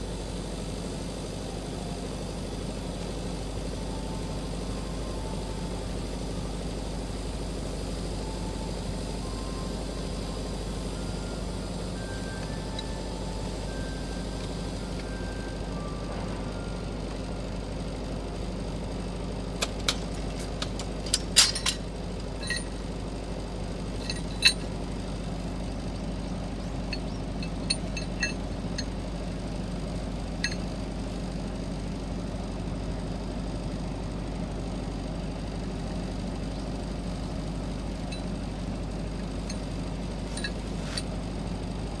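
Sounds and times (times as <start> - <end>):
machine hum: 0.0 - 42.0
light metallic clinks and ticks: 19.6 - 22.8, 24.0 - 24.8, 26.8 - 29.0, 30.4 - 30.7, 38.0 - 38.4, 39.2 - 41.2.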